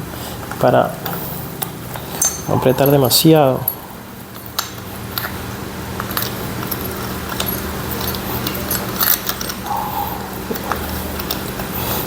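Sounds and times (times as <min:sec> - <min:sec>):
steady low hum: 0:00.9 - 0:06.9, 0:07.7 - 0:12.0
metallic clinks of tools: 0:02.1 - 0:03.8.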